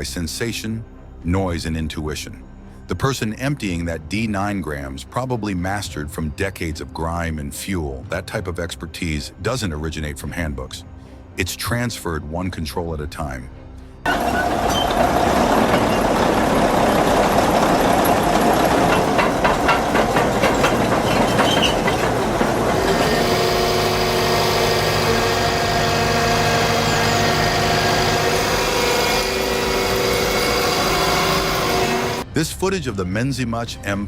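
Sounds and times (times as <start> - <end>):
earthmoving machine diesel engine: 14.1 - 32.2
metal clanks: 14.1 - 32.2.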